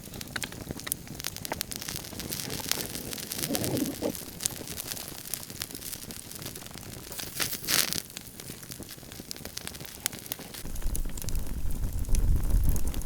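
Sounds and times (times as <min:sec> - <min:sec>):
rustling: 0:00.0 - 0:08.0
campfire crackling and popping: 0:00.0 - 0:13.0
wind rumbling on microphone: 0:01.7 - 0:05.0, 0:10.6 - 0:13.0.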